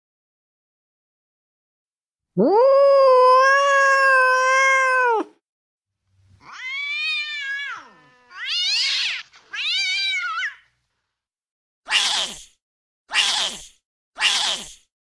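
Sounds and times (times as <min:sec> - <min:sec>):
angry cat yowling: 0:02.4 - 0:05.4, 0:06.4 - 0:10.6, 0:11.9 - 0:12.4, 0:13.1 - 0:14.7.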